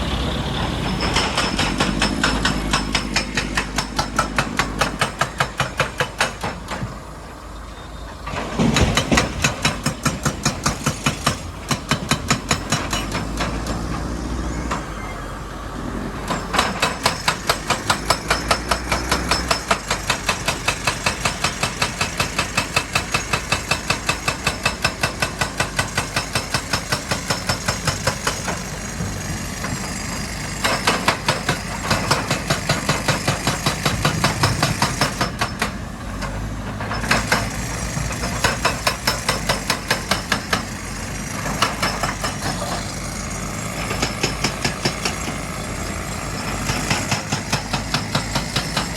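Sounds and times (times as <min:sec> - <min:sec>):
diesel engine running: 0:00.0 - 0:48.9
rock breaker hammering: 0:00.9 - 0:06.6.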